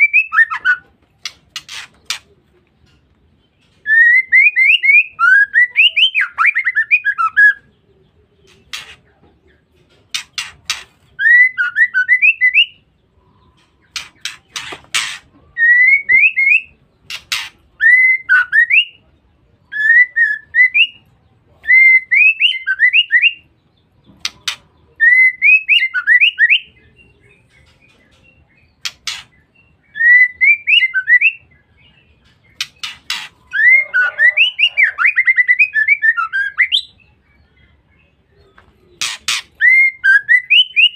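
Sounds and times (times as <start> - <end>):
bird whistled calls: 32.6 - 37.0, 39.0 - 40.9.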